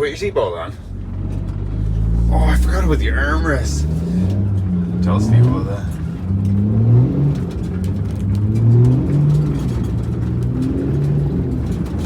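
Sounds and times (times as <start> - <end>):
diesel engine accelerating: 0.0 - 12.0
light rattles: 7.3 - 12.0.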